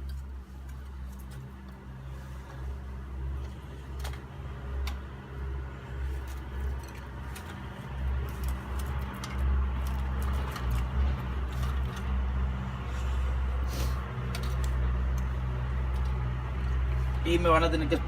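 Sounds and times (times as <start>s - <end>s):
twigs snapping: 6.1s - 12.2s.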